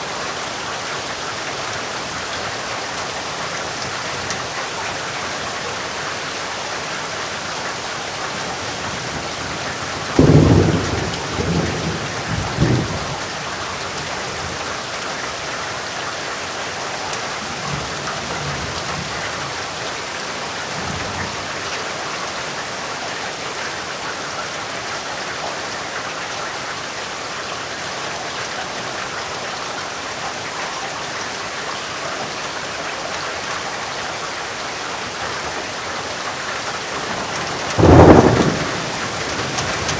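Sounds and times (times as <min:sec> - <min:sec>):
steady rain falling: 0:00.0 - 0:39.9
thunder clap and rumble: 0:09.2 - 0:13.4, 0:37.0 - 0:39.9.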